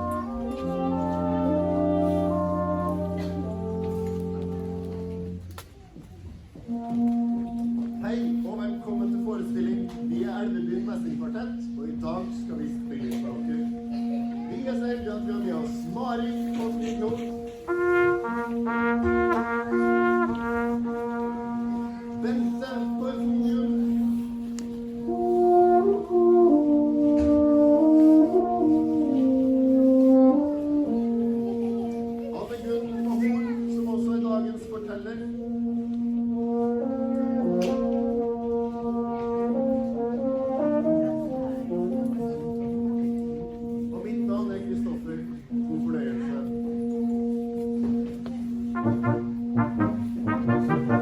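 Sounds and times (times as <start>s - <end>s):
brass quartet playing: 0.0s - 51.0s.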